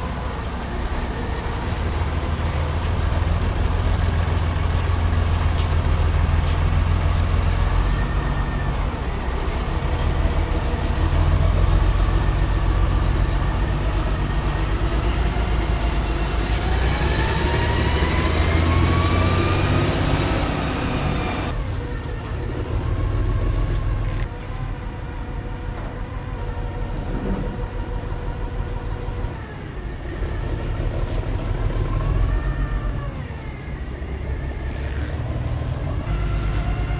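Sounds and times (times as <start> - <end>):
diesel truck engine rumbling: 0.0 - 36.9
rising whine: 7.3 - 21.6.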